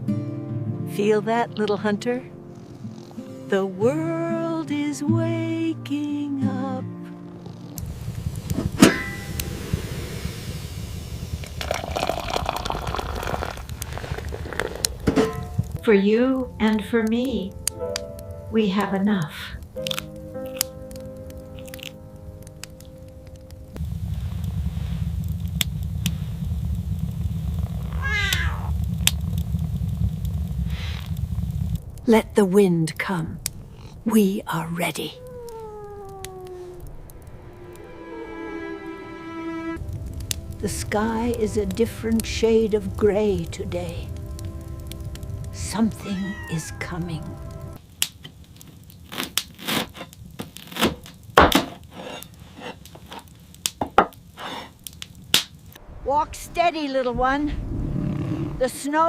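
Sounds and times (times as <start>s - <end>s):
sharp crackles: 2.5s - 3.6s, 7.0s - 37.9s, 39.8s - 59.0s
low rumble of wind: 7.3s - 49.0s, 52.8s - 59.0s
footsteps crunching through snow: 12.8s - 15.7s
kitten mewing: 28.0s - 28.7s, 34.8s - 37.0s, 45.9s - 47.5s
held musical chord: 37.2s - 47.8s.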